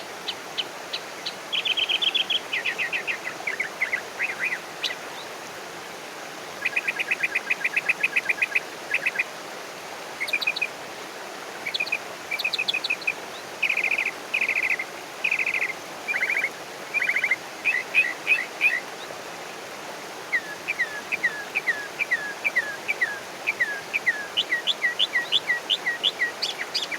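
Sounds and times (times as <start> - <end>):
steady background hiss: 0.0 - 26.9
songbird trills: 11.7 - 18.9, 20.3 - 26.9.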